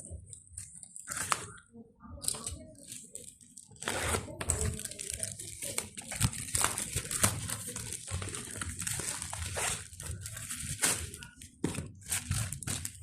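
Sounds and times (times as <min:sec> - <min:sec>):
plastic packaging crinkling: 0:02.3 - 0:13.0.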